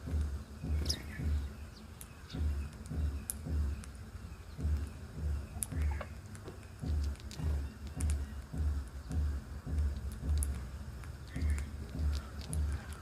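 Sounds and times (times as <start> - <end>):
low bass drum beat: 0.0 - 13.0
high bird chirps: 0.4 - 9.3, 9.9 - 13.0.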